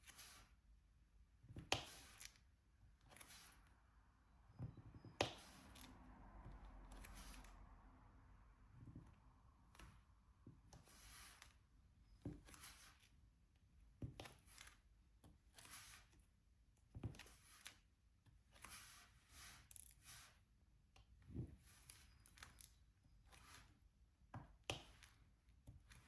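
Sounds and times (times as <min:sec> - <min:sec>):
drill pen scraping and rustling: 0:03.0 - 0:03.7, 0:06.9 - 0:07.5, 0:10.7 - 0:11.6, 0:12.2 - 0:13.2, 0:15.5 - 0:16.2, 0:17.2 - 0:17.9, 0:18.5 - 0:20.4.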